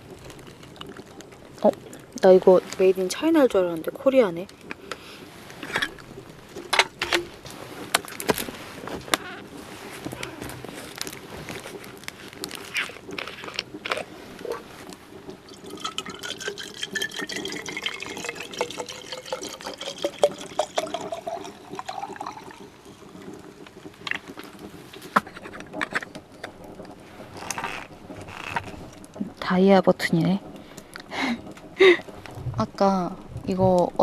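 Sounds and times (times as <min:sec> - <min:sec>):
liquid pouring into a jar: 0:15.3 - 0:24.6.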